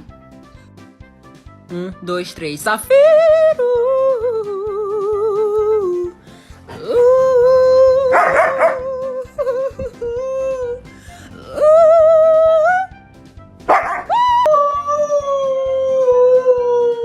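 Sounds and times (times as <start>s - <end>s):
dog howling: 6.8s - 9.1s, 13.7s - 17.0s
dog yelping: 8.1s - 8.9s, 13.7s - 14.4s.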